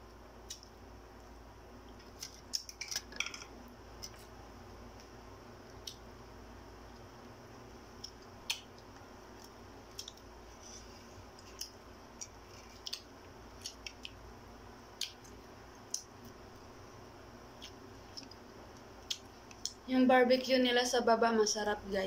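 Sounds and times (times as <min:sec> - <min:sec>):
wet chewing smacks and clicks: 0:11.3 - 0:14.2, 0:17.6 - 0:19.8.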